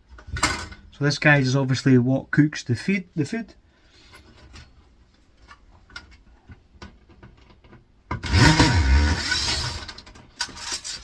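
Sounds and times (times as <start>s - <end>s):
power tool motor whirring: 8.2s - 10.0s.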